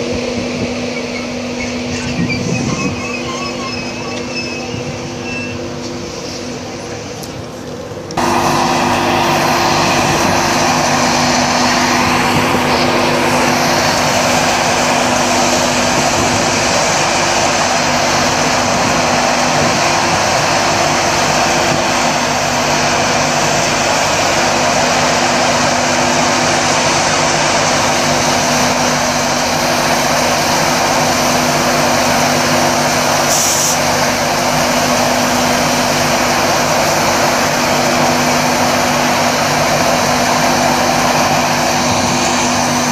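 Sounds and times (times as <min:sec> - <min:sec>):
train rushing past: 0:00.0 - 0:42.9
short high hiss: 0:33.3 - 0:33.9.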